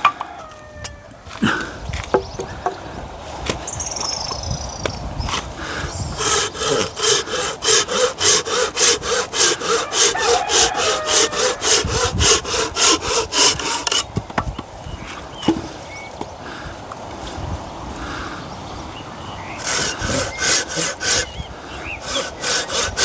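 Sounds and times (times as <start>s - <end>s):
hand saw cutting log: 5.3s - 14.2s, 19.6s - 23.0s.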